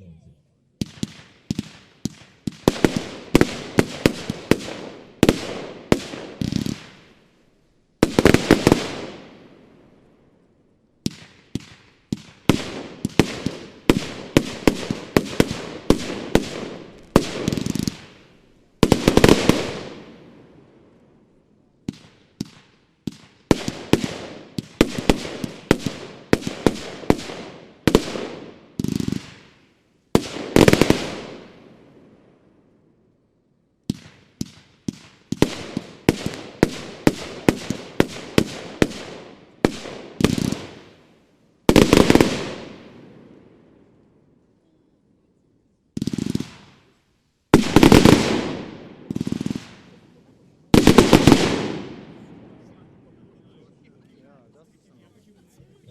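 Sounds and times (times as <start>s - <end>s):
firework cake firing rapid shots: 0.8s - 7.0s, 8.0s - 9.2s, 11.1s - 20.0s, 21.9s - 29.6s, 30.2s - 31.5s, 33.9s - 41.0s, 41.7s - 42.9s, 46.0s - 46.9s, 47.6s - 50.2s, 50.8s - 52.0s.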